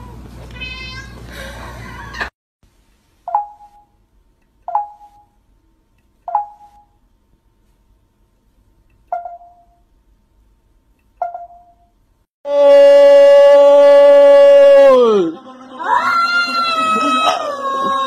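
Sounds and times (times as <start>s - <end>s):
short ringing dings: 11.2s - 12.0s.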